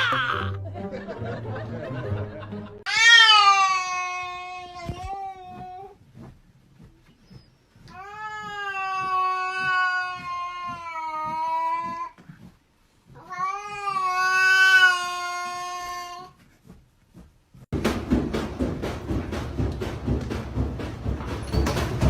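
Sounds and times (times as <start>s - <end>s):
cat yowling: 2.9s - 5.6s, 8.0s - 12.0s.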